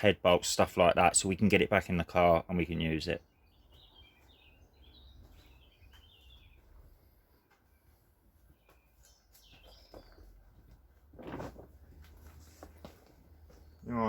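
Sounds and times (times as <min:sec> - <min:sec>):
faint bird chirps: 0:03.1 - 0:10.6.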